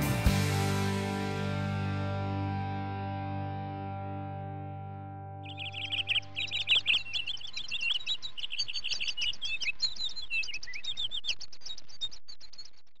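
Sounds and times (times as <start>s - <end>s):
small birds chirping: 5.4s - 13.0s.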